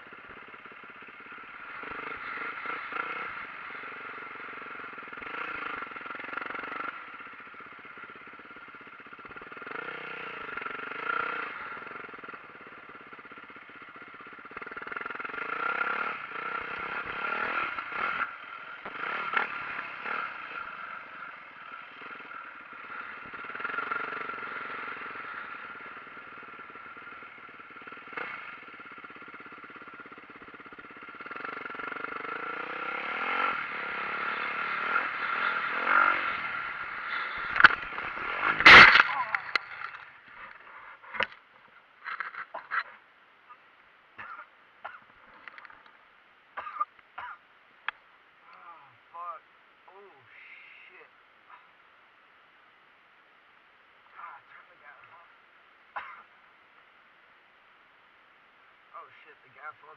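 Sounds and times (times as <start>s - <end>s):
dirt bike engine revving: 0.0s - 41.4s
sharp knocks and clatter: 37.5s - 40.1s.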